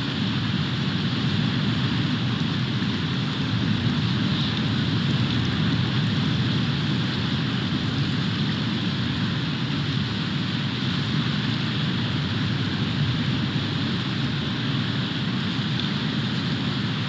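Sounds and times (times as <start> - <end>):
wind and snow hiss: 0.0 - 17.0.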